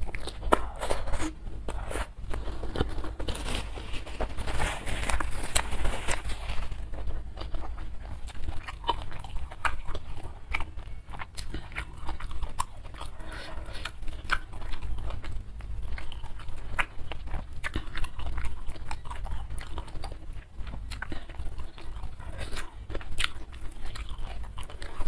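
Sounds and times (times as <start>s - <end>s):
wet chewing: 0.0s - 25.0s.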